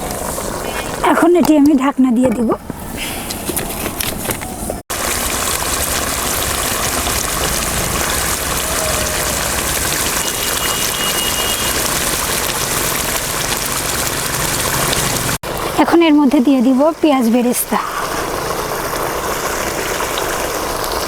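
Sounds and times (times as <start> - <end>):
chicken sizzling in gravy: 4.9 - 16.6, 17.2 - 21.0.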